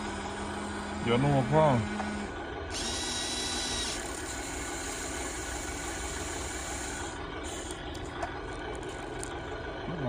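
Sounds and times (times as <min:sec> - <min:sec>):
toy excavator motor humming: 0:00.0 - 0:09.4.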